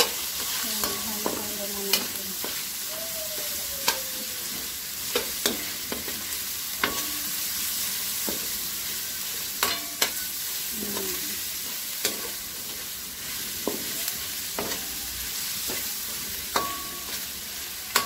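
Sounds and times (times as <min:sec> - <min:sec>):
chicken and onion sizzling in oil: 0:00.0 - 0:18.0
metal spatula scraping wok: 0:08.2 - 0:18.0.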